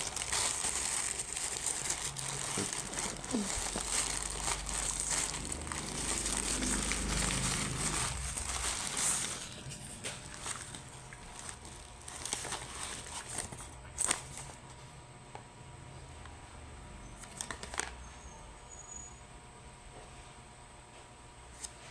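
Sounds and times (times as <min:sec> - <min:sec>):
packaging crinkling: 0:00.0 - 0:14.7, 0:17.2 - 0:17.9.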